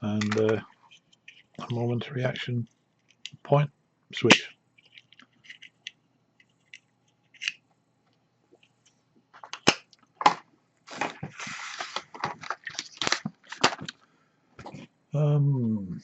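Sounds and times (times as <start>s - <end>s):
plastic packaging crinkling: 10.9s - 13.9s
plastic packaging clicks and snaps: 12.3s - 14.0s.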